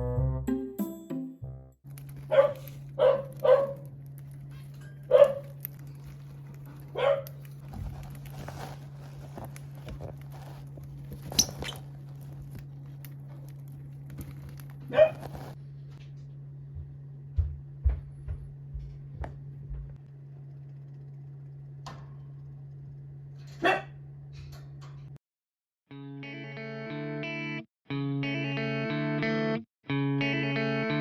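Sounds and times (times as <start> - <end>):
steady low hum: 1.9 - 25.2
dog barking: 2.3 - 3.9, 5.1 - 5.6, 6.9 - 7.4, 14.9 - 15.3, 23.6 - 24.0.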